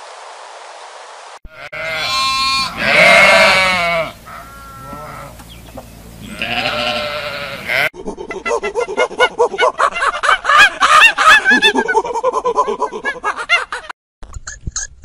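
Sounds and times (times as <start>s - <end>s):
sheep bleating: 1.5s - 5.4s, 6.2s - 7.9s.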